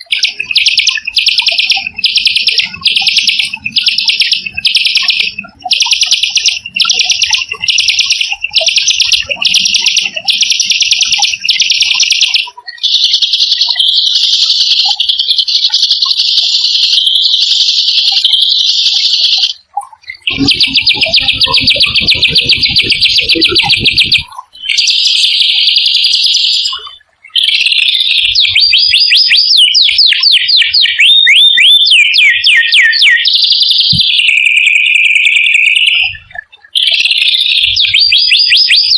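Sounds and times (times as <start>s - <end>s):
songbird trilling: 0.0s - 38.9s
low pulsing: 20.3s - 24.3s.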